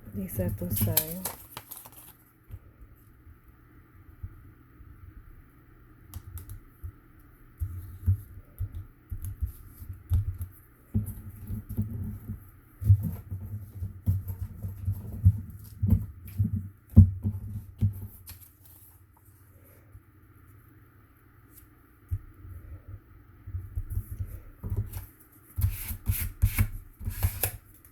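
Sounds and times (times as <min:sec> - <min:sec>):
cardboard and paper handling: 0:00.3 - 0:02.2, 0:17.4 - 0:19.4.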